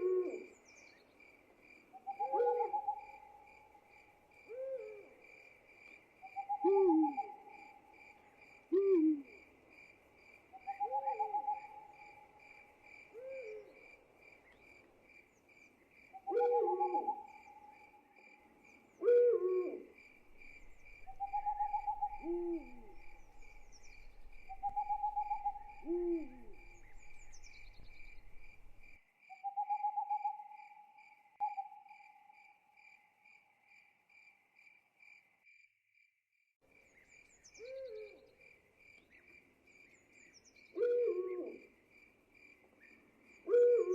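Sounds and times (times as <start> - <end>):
owl hooting: 0.0 - 0.6, 2.0 - 3.4, 6.3 - 7.8, 8.7 - 9.4, 10.7 - 12.3, 16.2 - 17.8, 19.0 - 30.8, 37.6 - 38.2, 40.8 - 41.6, 43.5 - 43.9
cricket chirping: 0.0 - 36.1, 36.7 - 43.9.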